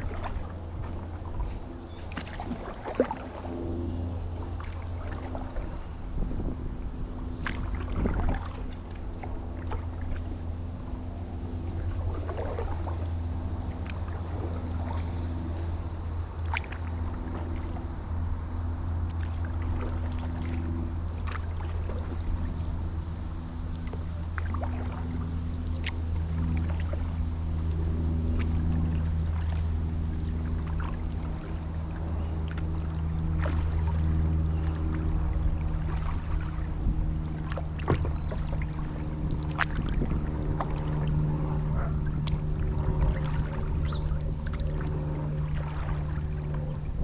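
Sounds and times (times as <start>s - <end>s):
paddle splashing in water: 0.0s - 47.0s
steady low hum: 0.0s - 47.0s.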